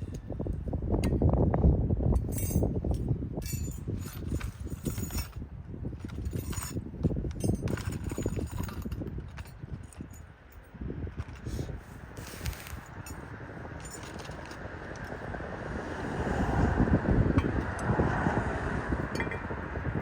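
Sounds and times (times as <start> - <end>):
metallic clinks of tools: 2.2 - 5.4, 12.5 - 14.6, 19.1 - 19.4
low rumbling noise: 11.7 - 20.0.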